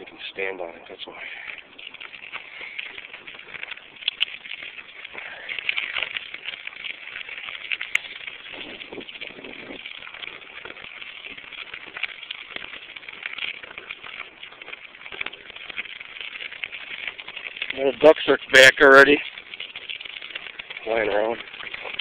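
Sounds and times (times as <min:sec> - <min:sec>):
birds chirping and chattering: 0:00.0 - 0:06.1.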